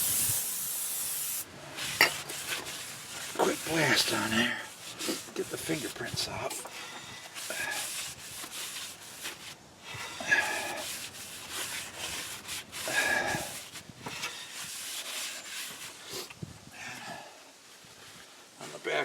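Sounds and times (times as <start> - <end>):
cloth rag rubbing metal part: 1.7 - 6.6, 10.3 - 16.0.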